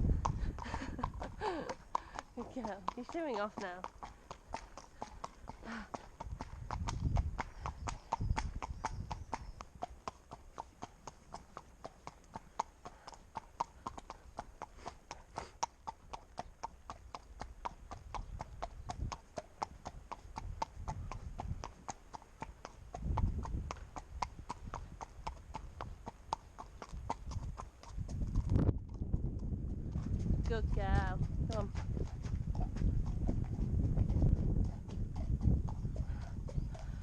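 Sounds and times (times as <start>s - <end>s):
wind rumbling on microphone: 0.0s - 9.9s, 17.3s - 37.0s
hooves clip-clopping on pavement: 0.0s - 37.0s.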